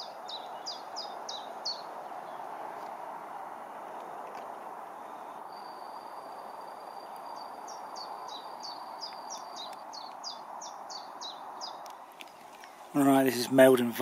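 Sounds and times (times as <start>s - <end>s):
outdoor background hiss: 0.0s - 14.0s
songbird singing: 0.0s - 14.0s
thin steady high whistle: 5.4s - 7.7s.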